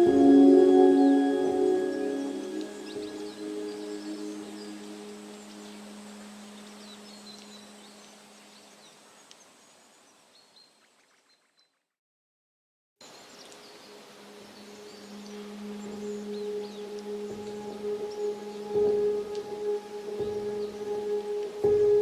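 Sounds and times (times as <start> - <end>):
soft background music drone: 0.0 - 8.8, 13.7 - 22.0.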